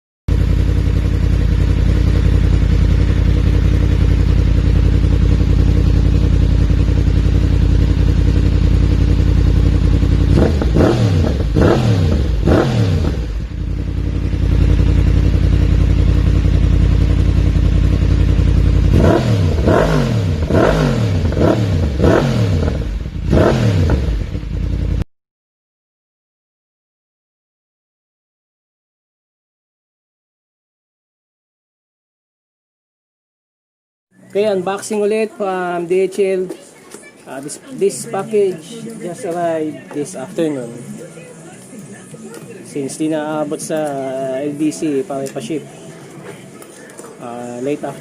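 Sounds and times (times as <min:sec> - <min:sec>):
motorcycle engine idling: 0:00.3 - 0:25.0
engine revving blips: 0:08.0 - 0:15.7, 0:18.8 - 0:25.0.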